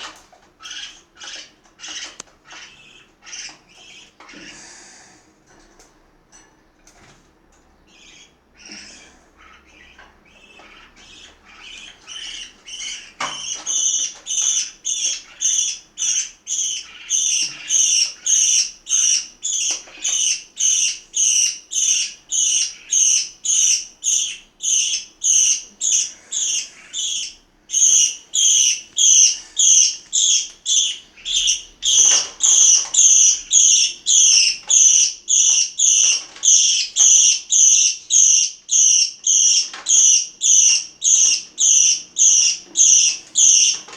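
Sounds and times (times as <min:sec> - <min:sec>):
parakeet high call: 0:10.6 - 0:43.8.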